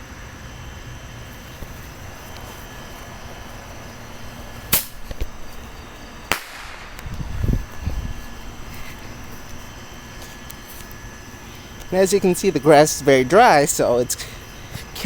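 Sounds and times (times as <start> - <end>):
steady low rumble: 0.0 - 15.0
bottle rockets bursting: 6.3 - 7.0
short crackle: 6.3 - 7.2.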